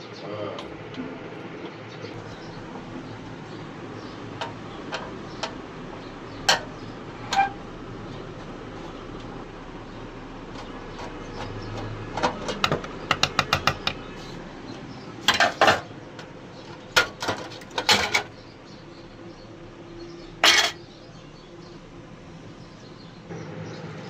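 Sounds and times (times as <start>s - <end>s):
metal burner parts clattering: 4.0s - 9.4s, 10.4s - 13.9s, 15.2s - 18.4s, 20.4s - 20.9s.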